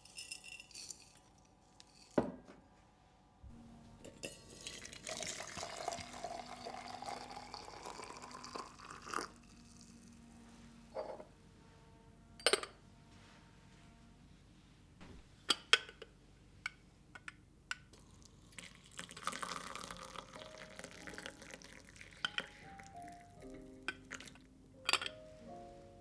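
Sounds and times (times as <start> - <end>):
small hard objects tapping and clinking: 0.0 - 2.3, 19.0 - 25.2
water running: 3.6 - 10.2, 18.2 - 25.0.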